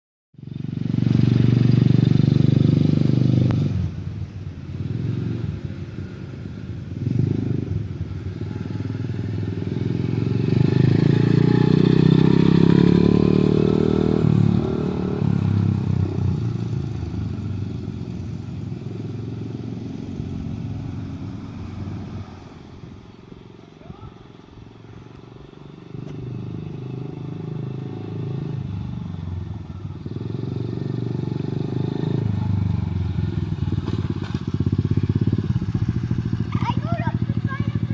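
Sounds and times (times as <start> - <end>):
dirt bike engine revving: 7.0 - 16.6, 30.0 - 37.9.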